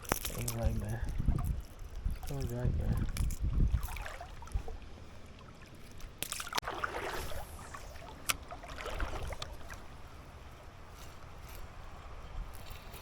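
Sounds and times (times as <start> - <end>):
river water splashing: 1.4 - 10.8.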